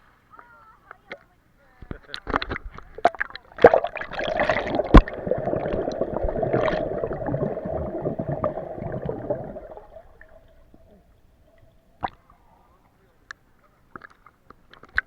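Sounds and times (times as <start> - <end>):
water gurgling and churning: 2.3 - 12.2.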